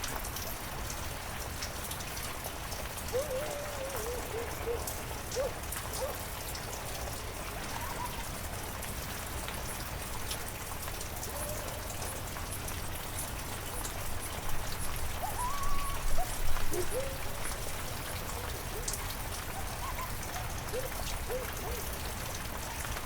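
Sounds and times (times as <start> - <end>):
heavy rain falling: 0.0 - 23.0
raindrops ticking close by: 0.0 - 23.0
faint animal calls: 3.1 - 6.3, 7.6 - 8.4, 15.1 - 22.1.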